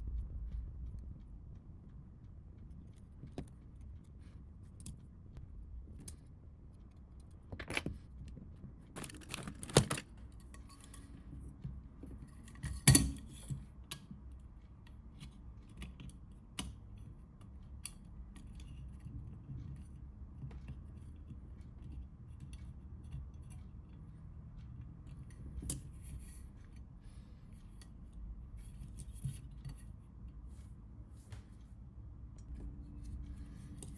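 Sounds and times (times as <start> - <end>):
faint low hum: 0.0 - 33.9
clicks of plastic and metal parts: 8.9 - 11.1.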